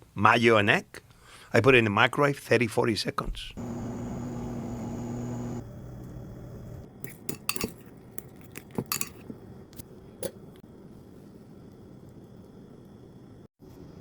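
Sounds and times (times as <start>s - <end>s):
steady hum: 3.6s - 7.2s
utensil clinking against dishes: 7.0s - 9.3s.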